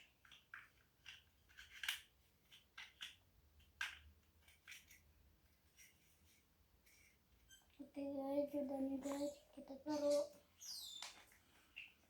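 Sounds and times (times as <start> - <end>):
plastic bricks clicking: 0.0 - 5.0.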